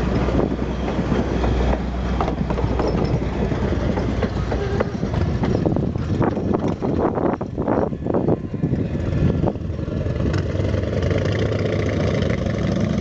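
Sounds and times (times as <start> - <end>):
train wheels clacking: 0.0 - 7.6
train low rumble: 0.0 - 13.0.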